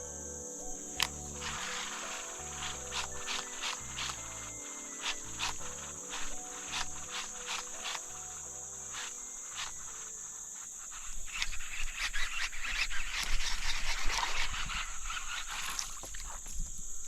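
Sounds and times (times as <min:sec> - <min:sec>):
background music notes: 0:00.0 - 0:11.0
insects droning: 0:00.0 - 0:17.0
splashing and crackling: 0:01.0 - 0:17.0.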